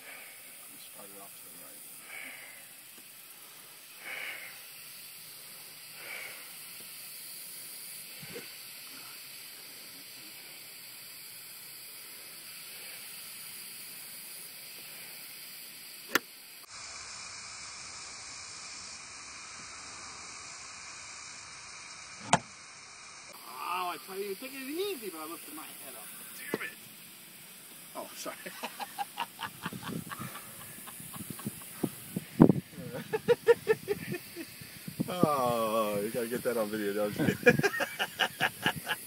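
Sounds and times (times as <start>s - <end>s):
steady outdoor hiss: 0.0s - 39.0s
golf club striking ball: 22.2s - 22.5s.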